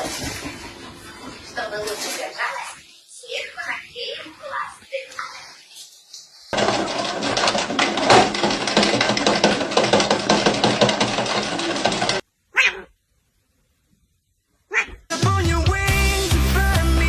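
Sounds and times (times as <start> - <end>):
dog barking: 12.5 - 12.9, 14.7 - 15.1.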